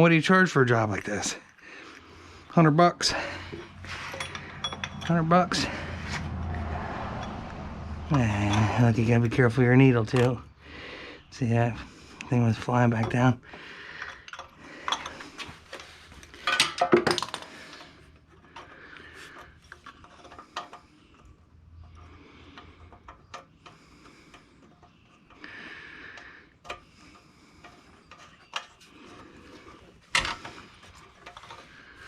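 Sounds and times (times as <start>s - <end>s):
small metal parts clinking: 3.5s - 6.1s, 13.9s - 21.3s.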